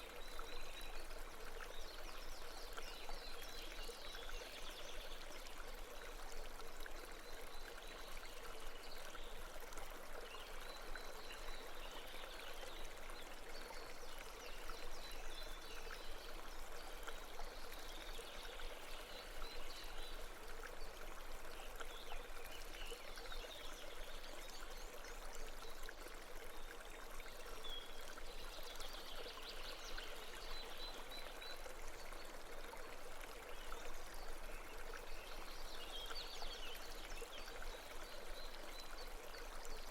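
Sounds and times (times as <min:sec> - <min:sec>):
babbling brook: 0:00.0 - 0:39.9.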